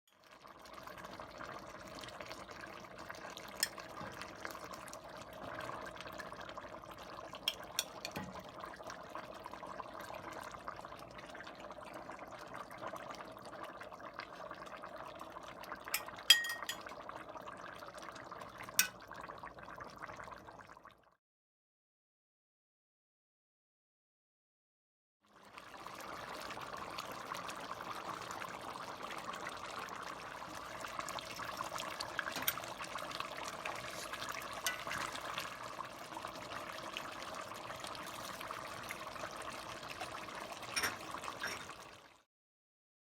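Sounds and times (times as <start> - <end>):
liquid bubbling in a cooking pot: 0.1 - 21.2, 25.2 - 42.3
utensil clinking against pot: 7.5 - 8.4, 15.9 - 16.9, 34.0 - 35.2, 40.7 - 41.7.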